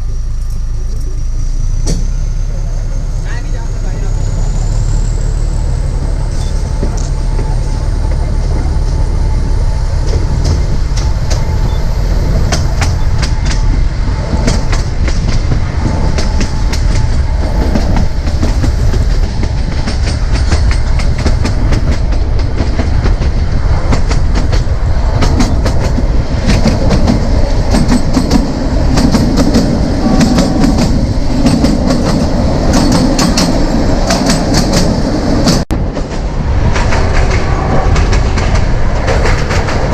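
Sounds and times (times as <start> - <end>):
train rumbling on track: 0.0 - 39.9
wheels clicking over rail joints: 14.4 - 39.9.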